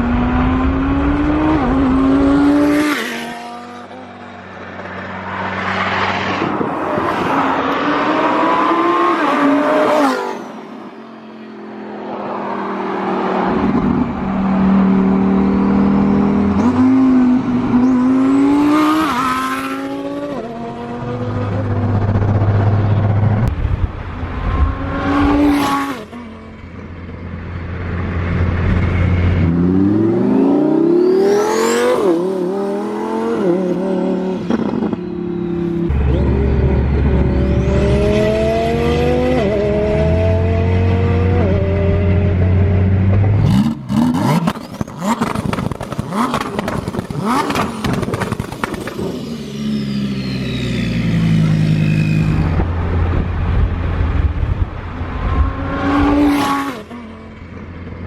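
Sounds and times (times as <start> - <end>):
exhaust pops and crackles: 44.4 - 49.1.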